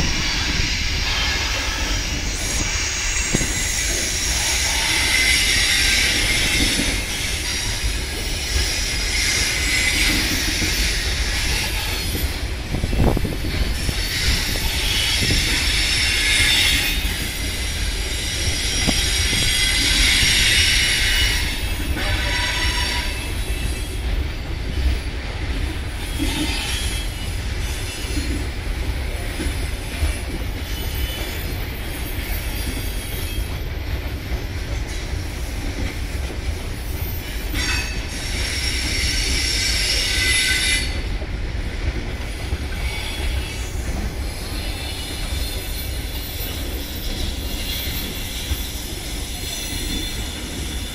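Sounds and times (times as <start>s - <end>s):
freight train rumbling past: 0.0s - 50.9s
train wheels squealing: 0.0s - 50.9s.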